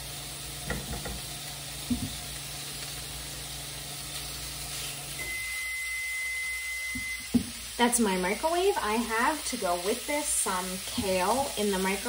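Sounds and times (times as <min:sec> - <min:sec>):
microwave humming: 0:00.0 - 0:10.1
chicken sizzling in hot oil: 0:00.0 - 0:12.0
microwave long beep: 0:04.8 - 0:08.8.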